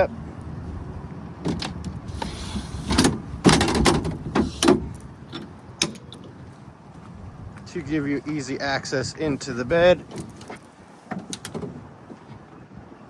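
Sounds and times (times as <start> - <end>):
tailgate step clunking and clicking: 1.4 - 6.1, 10.1 - 12.4.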